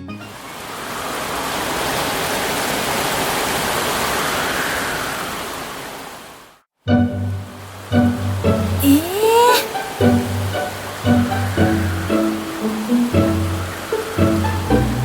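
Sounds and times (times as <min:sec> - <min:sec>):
storm wind rushing hiss: 0:03.6 - 0:06.4, 0:09.7 - 0:15.0.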